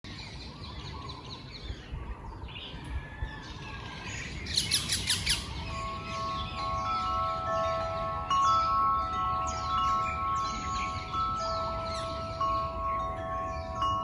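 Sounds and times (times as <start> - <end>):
songbirds chirping: 0.1 - 14.0
wind chimes ringing: 5.0 - 14.0.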